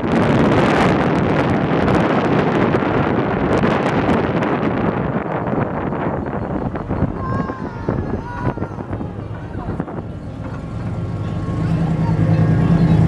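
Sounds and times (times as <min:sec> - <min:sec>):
wind buffeting microphone: 0:00.0 - 0:13.0
truck engine running: 0:04.7 - 0:13.0.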